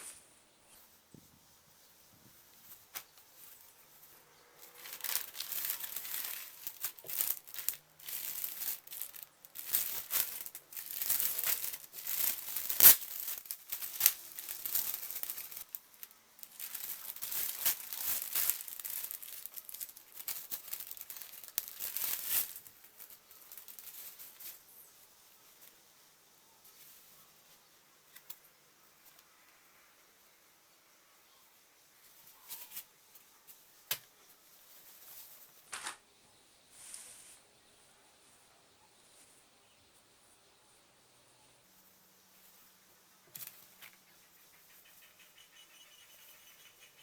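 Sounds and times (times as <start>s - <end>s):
packaging crinkling and rustling: 2.7s - 24.7s.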